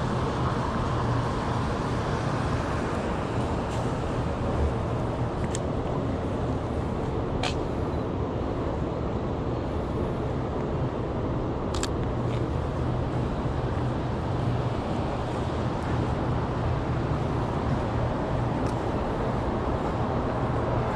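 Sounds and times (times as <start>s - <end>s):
city street traffic rumble: 0.0s - 20.9s
camera shutter clicks: 11.7s - 12.0s.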